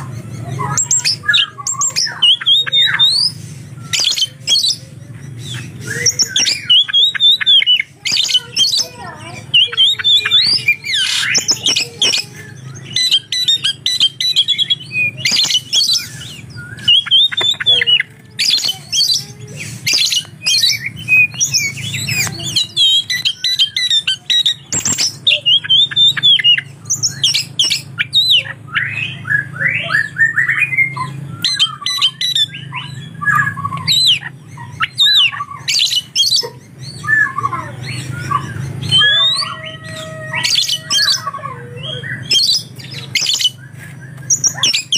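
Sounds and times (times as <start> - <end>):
bird singing varied whistles: 9.6 - 19.2, 42.1 - 44.9.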